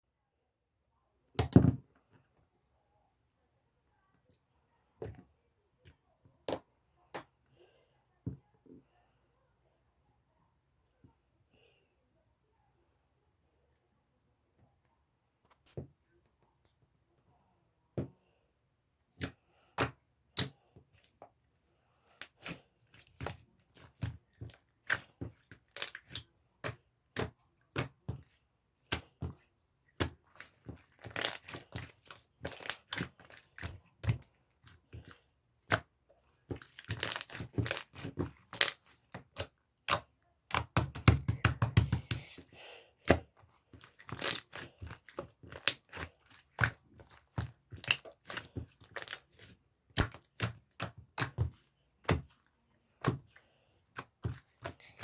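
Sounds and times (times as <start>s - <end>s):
slime crackling and popping: 30.4s - 34.2s, 36.5s - 42.2s, 43.9s - 51.5s.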